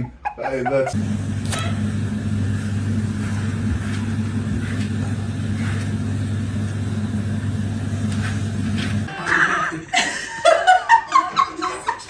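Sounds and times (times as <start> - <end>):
low mechanical hum: 0.8 - 10.0.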